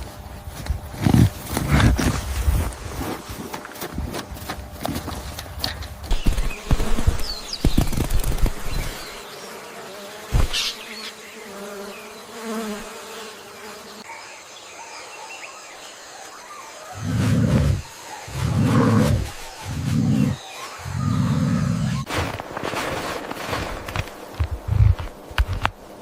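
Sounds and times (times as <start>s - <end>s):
flying insect buzzing: 6.0s - 14.1s, 16.9s - 22.1s.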